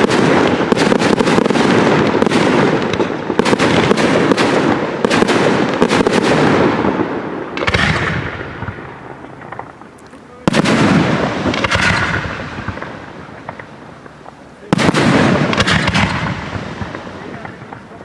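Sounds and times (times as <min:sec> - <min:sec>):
fireworks bursting with loud bangs: 0:00.0 - 0:18.0
faint crackling: 0:04.7 - 0:18.0.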